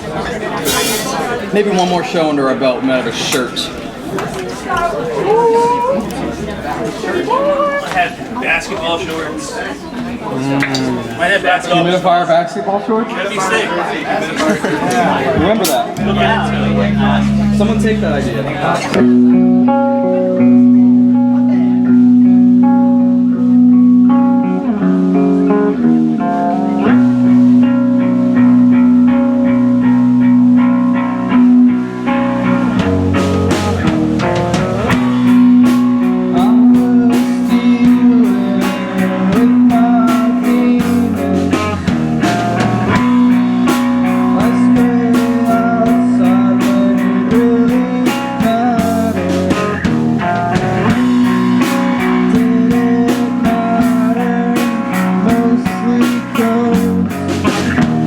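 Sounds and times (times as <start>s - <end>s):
drums and cymbals: 0.6s - 1.3s, 15.5s - 19.0s, 32.6s - 58.0s
electric guitar: 14.9s - 58.0s.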